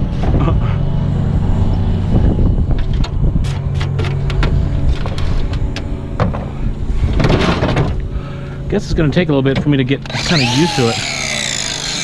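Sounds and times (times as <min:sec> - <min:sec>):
angle grinder humming: 0:10.0 - 0:12.0
grinder disc scraping wood: 0:10.1 - 0:12.0.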